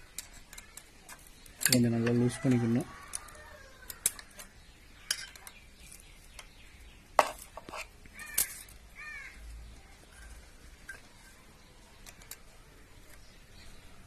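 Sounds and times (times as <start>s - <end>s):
spanner clicking on metal: 0.0s - 5.6s.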